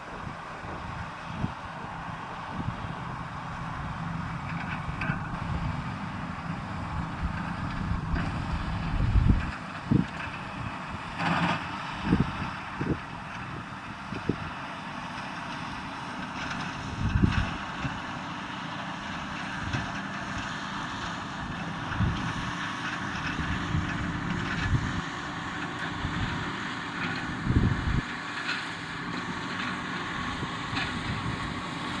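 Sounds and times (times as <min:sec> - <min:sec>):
wind buffeting microphone: 0:00.0 - 0:11.2, 0:12.0 - 0:14.5, 0:16.8 - 0:18.0, 0:21.4 - 0:22.6, 0:23.2 - 0:25.2, 0:27.3 - 0:28.1, 0:30.4 - 0:31.6
round baler working: 0:00.0 - 0:32.0
tractor engine running: 0:00.0 - 0:32.0.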